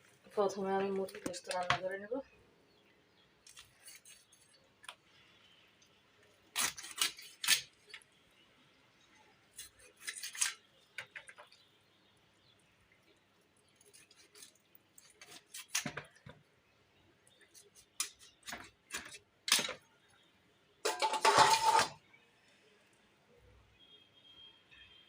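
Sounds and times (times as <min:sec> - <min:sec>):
blade snipping raw chicken: 0:06.5 - 0:08.0.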